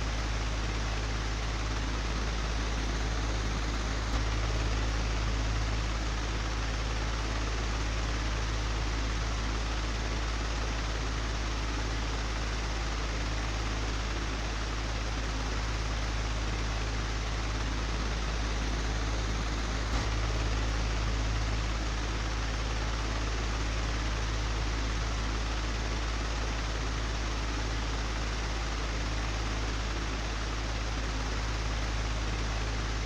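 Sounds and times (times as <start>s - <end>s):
electric fan whirring: 12.6s - 33.0s
low hum: 17.1s - 27.6s.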